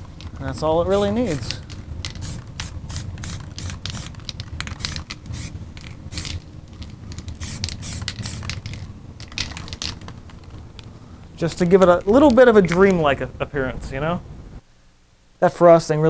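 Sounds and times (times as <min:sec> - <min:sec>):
spray-paint can hissing: 0:02.1 - 0:06.4, 0:07.3 - 0:08.8.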